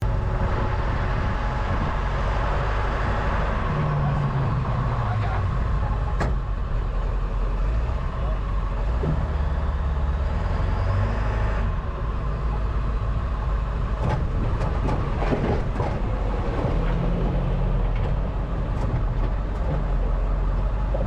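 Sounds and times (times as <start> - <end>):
truck engine rumbling: 0.0 - 21.0
clanks and knocks: 14.0 - 17.0.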